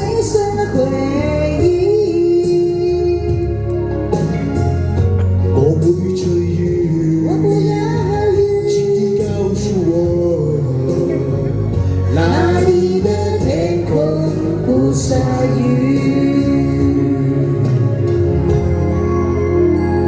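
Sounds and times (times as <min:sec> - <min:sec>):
karaoke backing track: 0:00.0 - 0:20.0
person singing: 0:05.2 - 0:20.0.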